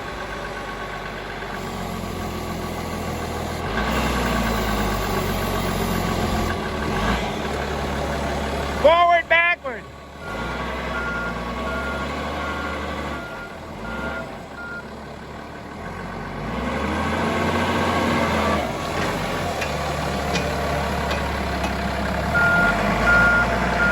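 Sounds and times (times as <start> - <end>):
forklift engine running: 0.0 - 23.9.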